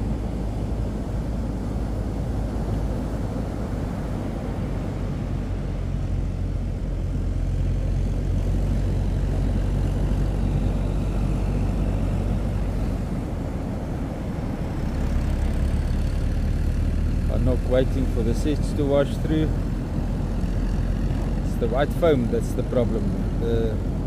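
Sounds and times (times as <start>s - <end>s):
engine running at low revs: 0.0s - 24.0s.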